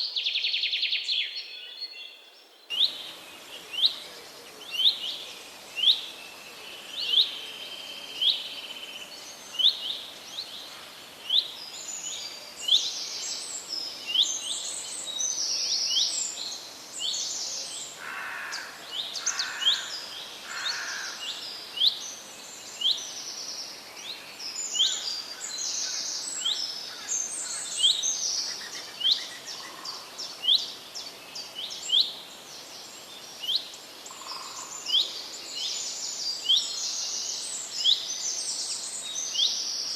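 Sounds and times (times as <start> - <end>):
birds twittering: 17.0 - 22.0.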